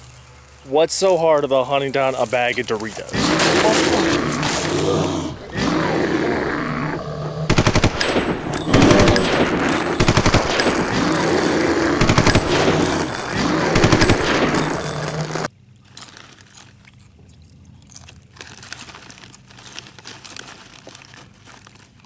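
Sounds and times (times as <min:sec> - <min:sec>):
automatic rifle fire: 0:07.5 - 0:15.4.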